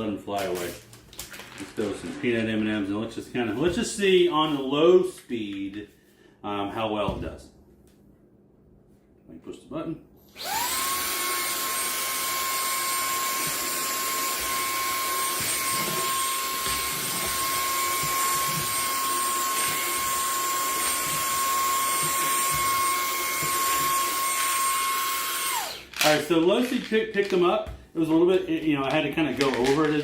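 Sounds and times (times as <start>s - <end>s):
handheld vacuum motor whine: 10.2s - 26.2s.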